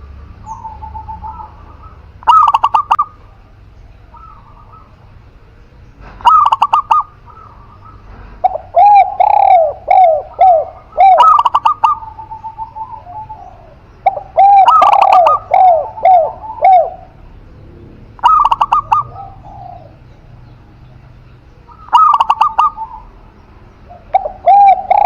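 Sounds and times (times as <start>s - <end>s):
dove cooing: 0.0s - 5.2s, 6.0s - 20.2s, 21.6s - 25.0s
higher clipped dove notes: 6.2s - 17.2s.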